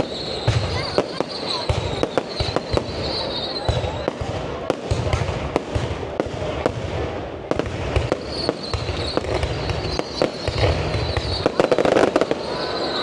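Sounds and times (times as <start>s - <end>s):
high whistle: 0.0s - 4.1s, 8.2s - 13.0s
fireworks bangs: 0.0s - 13.0s
fireworks crackling: 0.0s - 13.0s.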